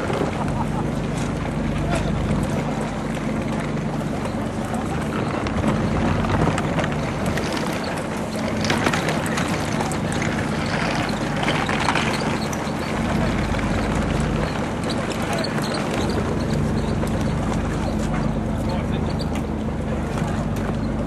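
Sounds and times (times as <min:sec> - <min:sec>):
boat engine running: 0:00.0 - 0:21.0
water wash: 0:00.0 - 0:21.0
wind noise: 0:04.8 - 0:15.0.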